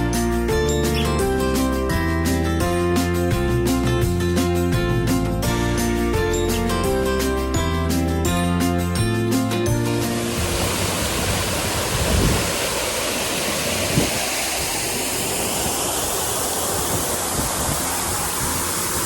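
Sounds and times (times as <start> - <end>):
background music: 0.0 - 11.5
waterfall rushing: 9.8 - 19.0.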